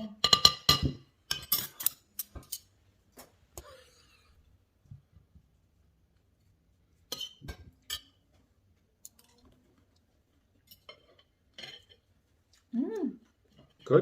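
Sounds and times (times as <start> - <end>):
cutlery clinking on dishes: 0.2 - 2.7, 7.1 - 8.2, 10.6 - 12.0.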